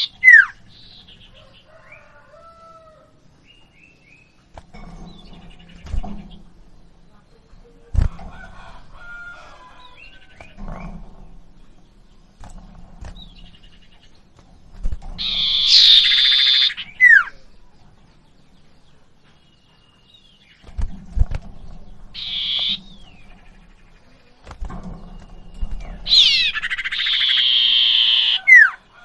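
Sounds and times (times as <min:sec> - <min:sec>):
bird harsh buzzy chatters: 0:00.0 - 0:01.0, 0:15.2 - 0:17.4, 0:22.1 - 0:22.8
faint low knocks: 0:00.6 - 0:15.3
bird thin high whistles: 0:26.2 - 0:28.6.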